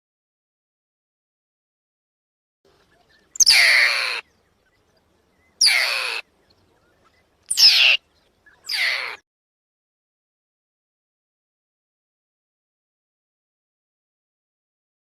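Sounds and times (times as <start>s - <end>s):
harsh animal calls: 3.4s - 4.2s, 5.6s - 6.3s, 8.7s - 9.2s.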